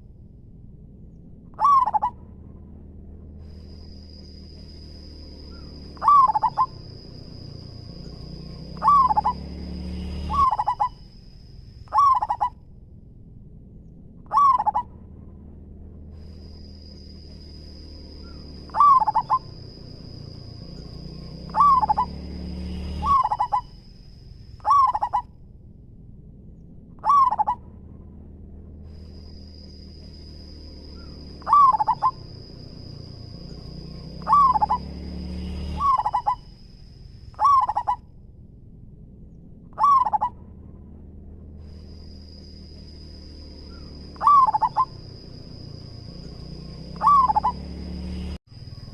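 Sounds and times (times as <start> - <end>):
dove cooing: 1.6 - 2.2, 5.5 - 7.8, 8.7 - 9.5, 10.2 - 11.0, 11.9 - 12.6, 14.3 - 14.9, 18.2 - 20.5, 21.4 - 22.2, 22.9 - 23.7, 24.6 - 25.2, 27.0 - 27.6, 31.0 - 32.9, 34.2 - 34.9, 35.8 - 36.4, 37.4 - 38.0, 39.8 - 40.3, 43.7 - 45.3, 46.9 - 47.7
high-pitched whine: 26.6 - 48.9.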